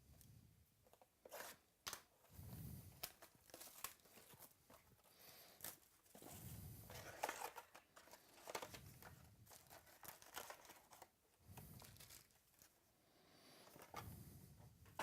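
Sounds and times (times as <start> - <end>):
wrappers crinkling and tearing: 3.0 - 6.1, 6.9 - 12.8.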